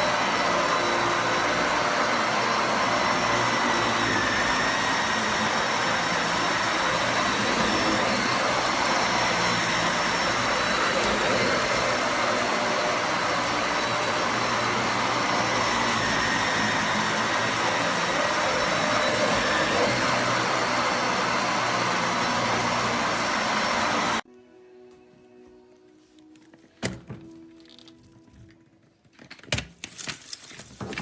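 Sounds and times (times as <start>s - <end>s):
vacuum cleaner running: 0.0s - 24.2s.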